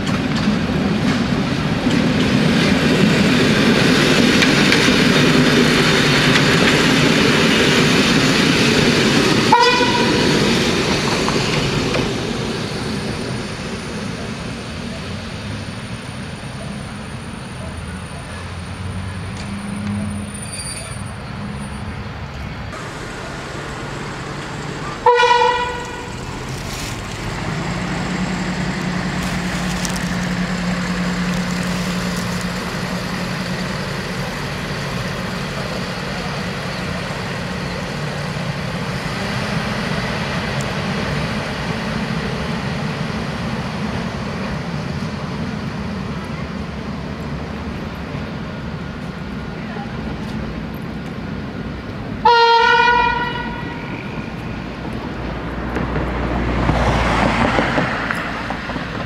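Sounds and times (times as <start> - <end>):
railcar engine humming: 0.0 - 59.0
train horn blast: 9.5 - 10.3, 25.0 - 26.3, 52.2 - 54.0.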